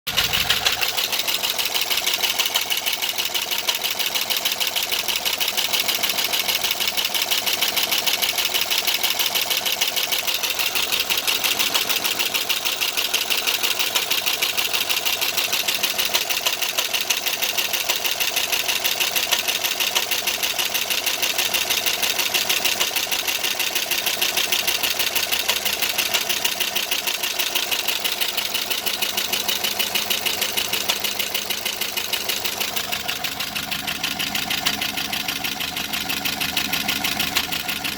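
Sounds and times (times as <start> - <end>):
fast ticking from engine valvetrain: 0.0 - 37.9
car engine running: 0.1 - 37.9.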